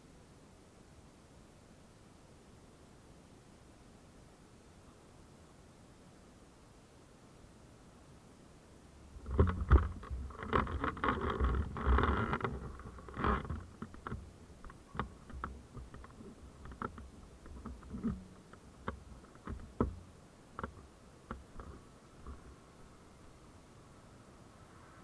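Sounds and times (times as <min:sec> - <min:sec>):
rustling: 0:09.1 - 0:23.4
close clicks and knocks: 0:09.2 - 0:22.5.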